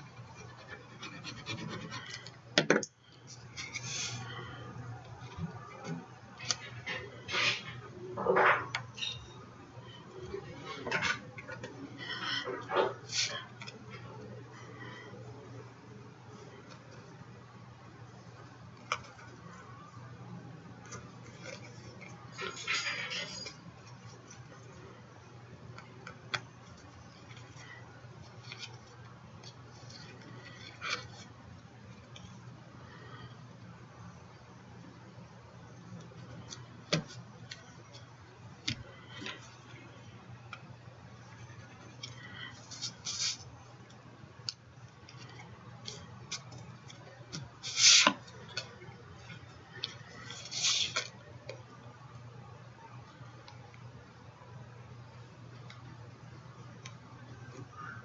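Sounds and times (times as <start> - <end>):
paper rustling: 41.6 - 43.5, 49.8 - 51.1.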